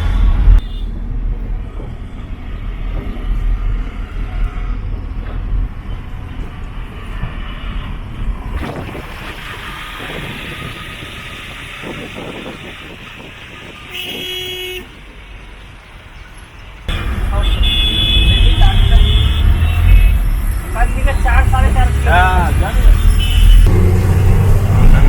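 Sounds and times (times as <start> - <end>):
road traffic engines: 0.0 - 25.0
vehicle horn honking: 10.0 - 14.9, 16.9 - 20.2, 23.0 - 23.7.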